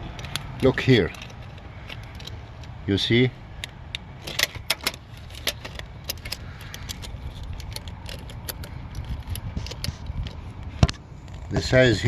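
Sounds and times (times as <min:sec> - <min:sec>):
steady low rumble: 0:00.0 - 0:12.0
metal part clicks and clinks: 0:00.1 - 0:02.8, 0:03.6 - 0:10.5.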